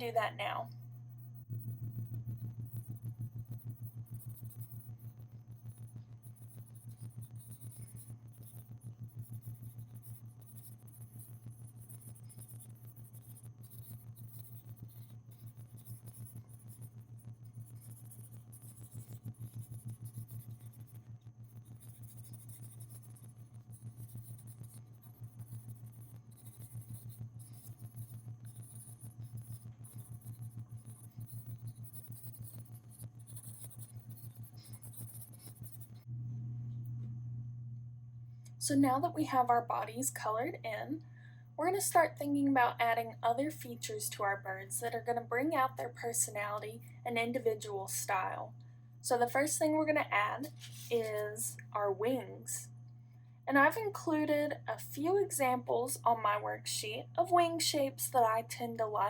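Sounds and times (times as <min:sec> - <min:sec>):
pencil scribbling on paper: 0:00.0 - 0:36.1
low electrical hum: 0:00.0 - 0:59.0.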